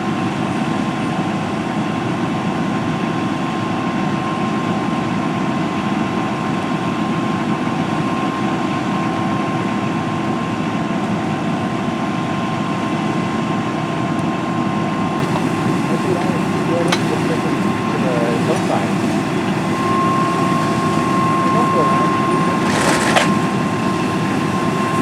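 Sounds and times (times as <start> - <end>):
vehicle engine running: 15.2 - 25.0.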